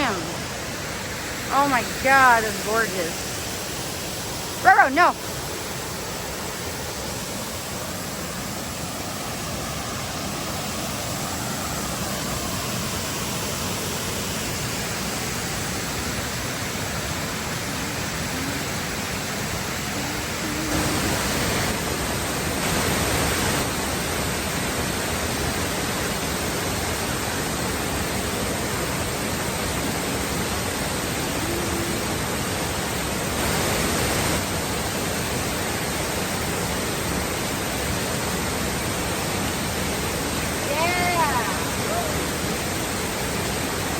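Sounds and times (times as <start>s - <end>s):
waterfall rushing: 0.0s - 43.9s.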